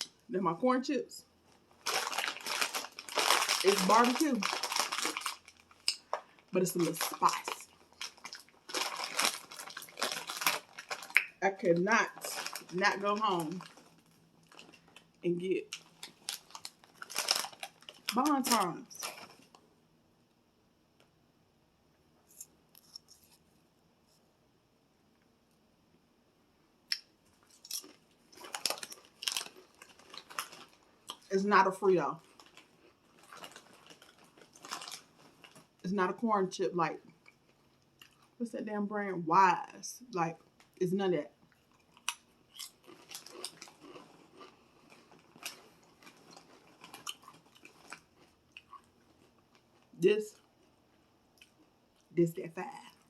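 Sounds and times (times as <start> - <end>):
crunching corn chips: 1.4 - 19.6, 26.9 - 35.8, 41.5 - 51.7.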